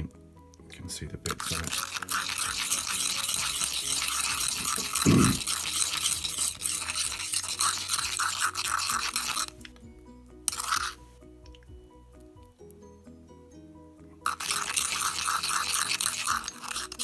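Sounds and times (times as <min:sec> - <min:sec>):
metal spoon scraping in mortar: 0:01.3 - 0:09.8, 0:10.5 - 0:11.0, 0:14.2 - 0:17.0.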